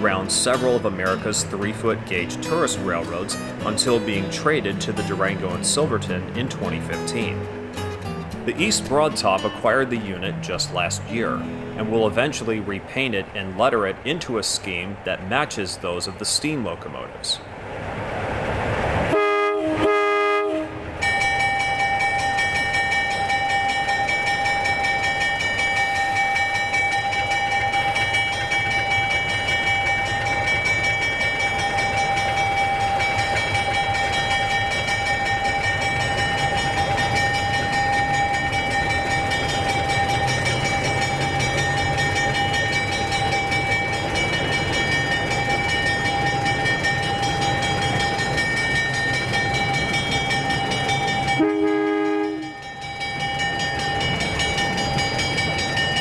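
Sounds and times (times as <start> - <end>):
locomotive engine low rumble: 0.0 - 56.0
locomotive horn toot: 19.1 - 24.2, 51.3 - 52.7.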